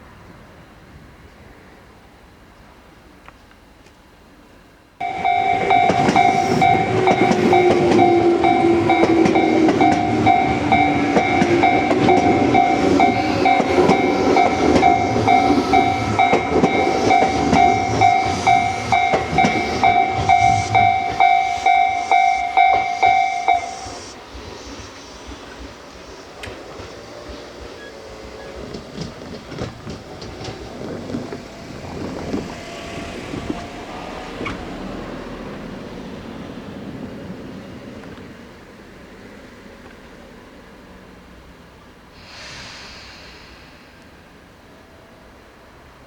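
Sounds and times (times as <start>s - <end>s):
pulsing electronic alarm tone: 5.0s - 24.2s
train wheels clicking over rail joints: 5.0s - 38.6s.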